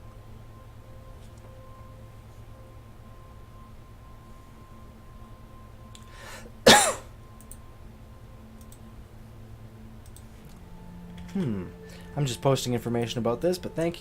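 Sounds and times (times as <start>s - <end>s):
intake of breath: 6.1s - 6.5s
person coughing: 6.6s - 7.1s.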